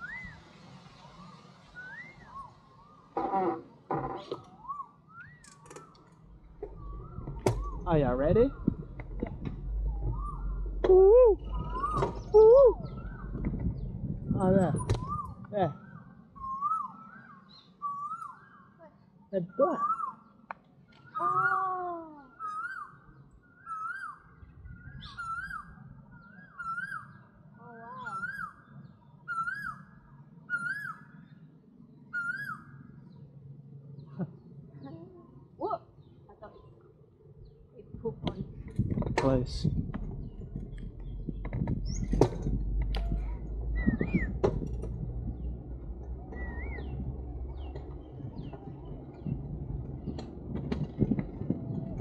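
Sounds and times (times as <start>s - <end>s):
birds whistling calls: 0.0s - 3.2s, 4.3s - 18.8s, 19.4s - 31.4s, 32.0s - 33.2s, 40.2s - 44.6s, 45.4s - 50.2s
bird calling whistled note: 1.8s - 2.6s, 29.3s - 29.9s
steady low rumble: 6.2s - 16.6s, 33.2s - 52.0s.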